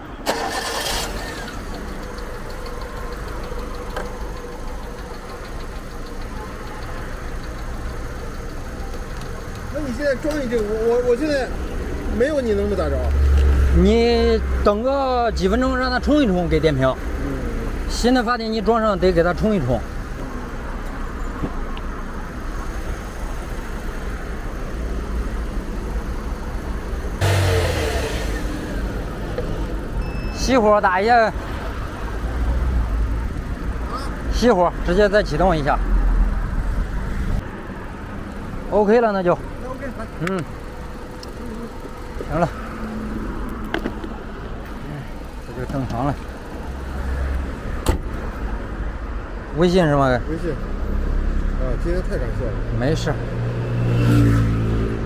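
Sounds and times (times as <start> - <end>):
car engine idling: 0.2 - 50.8
faint rapid ticking: 1.8 - 10.9.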